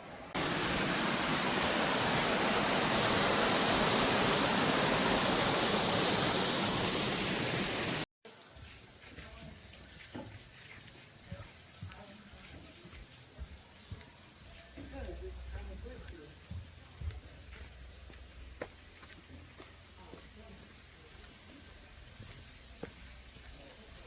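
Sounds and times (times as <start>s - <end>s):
outdoor ambience: 0.0s - 24.0s
waterfall rushing: 0.4s - 8.1s.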